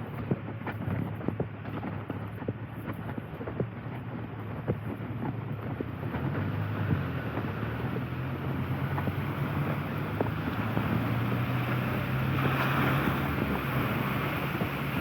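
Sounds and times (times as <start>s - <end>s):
low engine-like hum: 0.0s - 15.0s
raindrops ticking: 4.7s - 15.0s.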